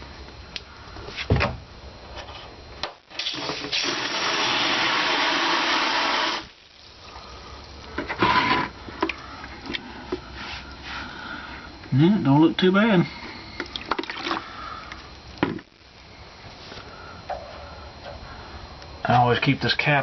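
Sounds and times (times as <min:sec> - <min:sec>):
valve shutting sharply: 0:03.1 - 0:06.6
water gushing from drain valve: 0:03.1 - 0:10.3.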